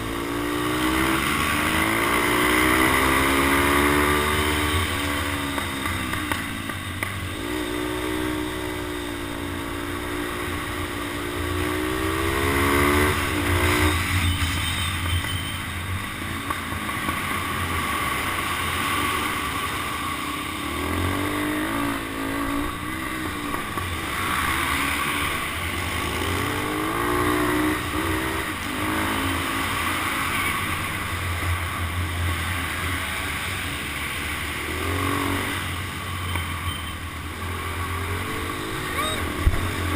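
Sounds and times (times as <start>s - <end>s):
motorcycle engine accelerating: 0.0s - 15.5s, 37.3s - 39.9s.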